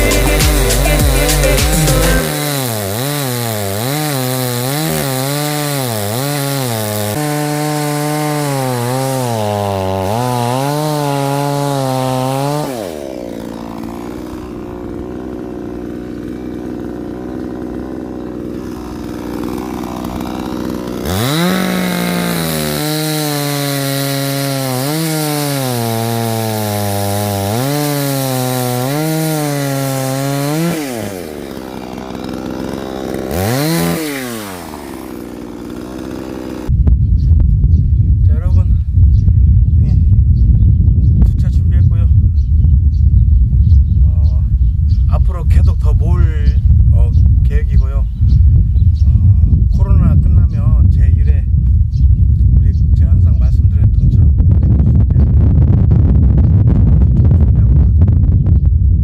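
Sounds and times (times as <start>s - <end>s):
chainsaw cutting wood: 0.0s - 36.8s.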